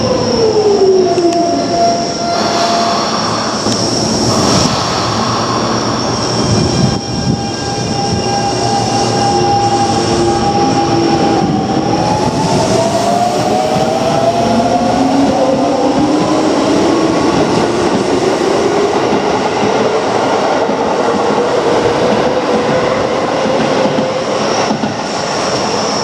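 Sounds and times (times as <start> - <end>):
train rail noise: 0.0 - 26.0
electric train motor whine: 1.2 - 18.9.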